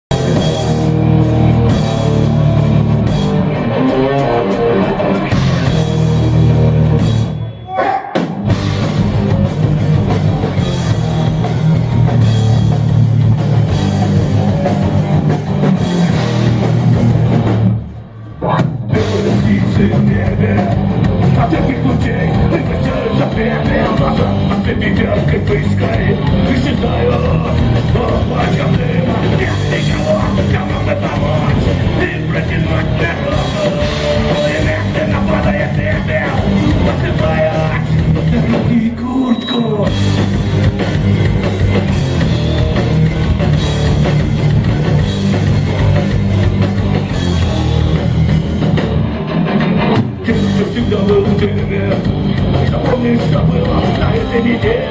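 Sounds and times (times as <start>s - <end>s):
bass guitar: 0.0s - 54.9s
distorted guitar: 0.0s - 54.9s
drum kit: 0.0s - 54.9s
punk rock band playing: 0.0s - 54.9s.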